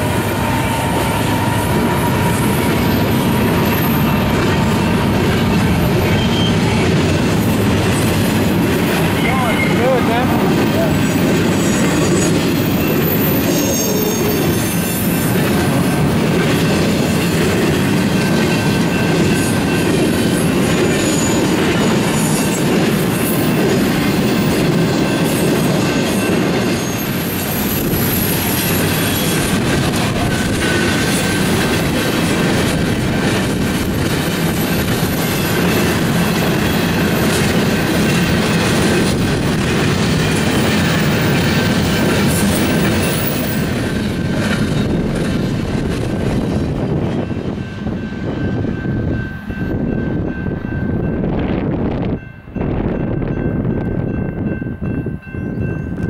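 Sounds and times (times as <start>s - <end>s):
high wheel squeals: 0.0s - 8.2s, 8.9s - 15.8s, 20.8s - 22.6s, 26.6s - 29.6s
train wheels rumbling on rail: 0.0s - 56.0s.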